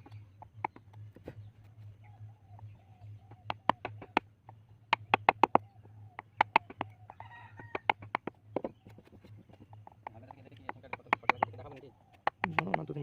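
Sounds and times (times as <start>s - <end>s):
low hum: 0.0s - 10.7s
chisel tapping into wood: 3.3s - 5.6s, 6.2s - 8.8s, 9.5s - 13.0s.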